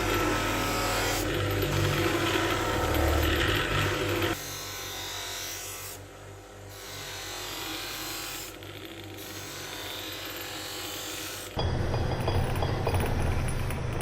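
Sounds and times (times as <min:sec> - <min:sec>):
loud machine: 0:00.0 - 0:04.6, 0:11.5 - 0:14.0
small power tool buzzing: 0:00.0 - 0:11.6.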